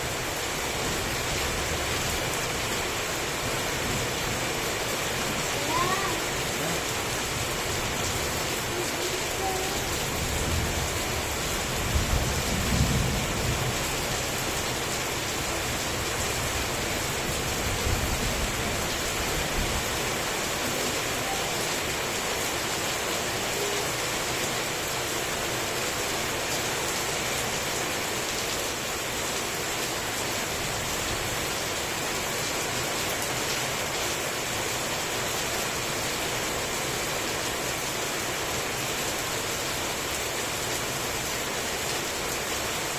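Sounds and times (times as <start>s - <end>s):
heavy rain falling: 0.0s - 42.9s
low rumble of thunder: 10.1s - 14.7s.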